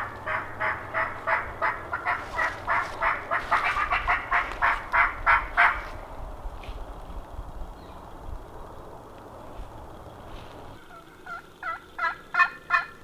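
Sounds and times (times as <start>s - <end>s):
turkey yelps: 0.0s - 5.9s.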